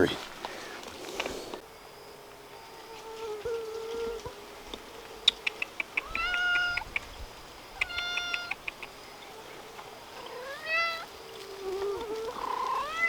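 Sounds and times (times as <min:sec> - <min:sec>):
cat meowing: 0:06.0 - 0:06.9, 0:07.8 - 0:08.6, 0:10.2 - 0:11.1, 0:12.4 - 0:13.0.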